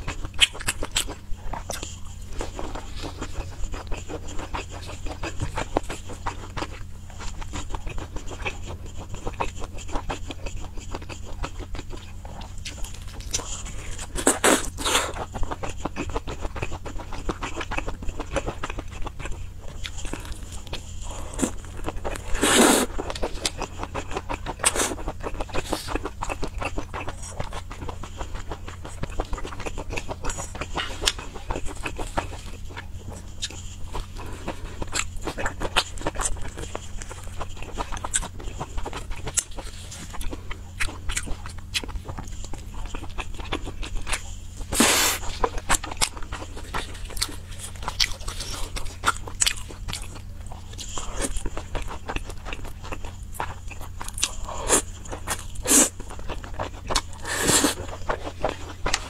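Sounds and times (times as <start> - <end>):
wet chewing and lip-smacking: 0.0 - 59.0
slurps: 22.2 - 23.0, 44.6 - 45.4.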